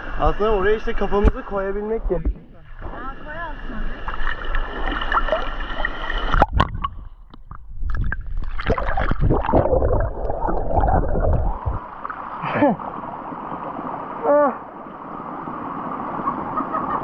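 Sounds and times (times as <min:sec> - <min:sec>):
muffled underwater gurgling: 0:05.1 - 0:12.0.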